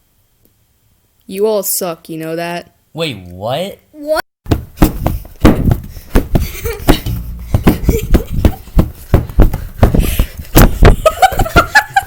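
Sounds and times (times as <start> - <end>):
loud thumps and knocks: 4.4 - 12.0.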